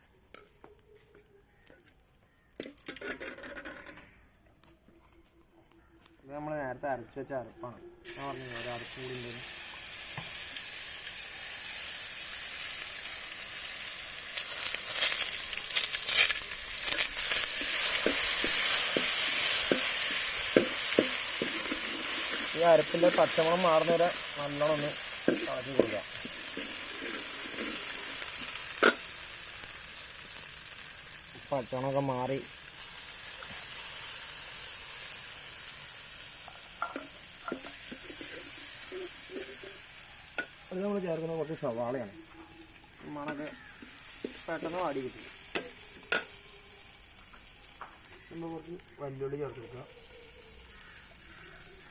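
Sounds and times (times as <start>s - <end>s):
paste sizzling in hot oil: 8.0s - 51.9s
stirring squeaks and clinks: 12.8s - 29.0s.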